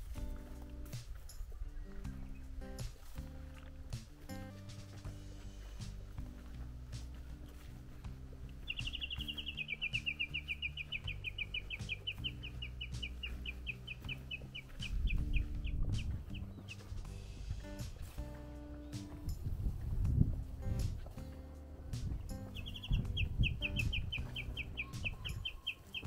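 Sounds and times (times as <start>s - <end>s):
soft background music: 0.0s - 26.0s
bird trilling: 8.5s - 17.0s, 22.3s - 26.0s
wind on microphone: 14.0s - 17.2s, 19.1s - 21.2s, 21.8s - 25.9s.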